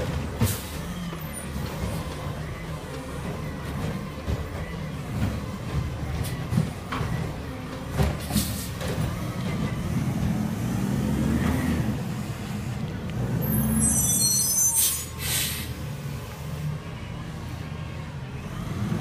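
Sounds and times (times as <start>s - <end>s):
diesel engine running: 0.0s - 19.0s
air brakes hissing: 8.2s - 8.8s, 13.4s - 16.0s
high squeal: 13.4s - 15.4s.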